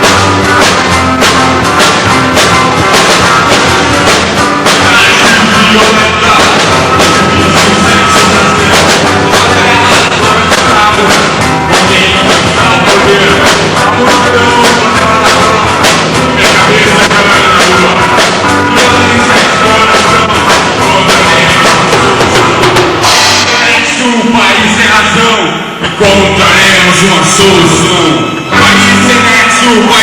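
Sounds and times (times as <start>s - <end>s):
drum kit beat: 0.0s - 30.0s
rock band playing live: 0.0s - 30.0s.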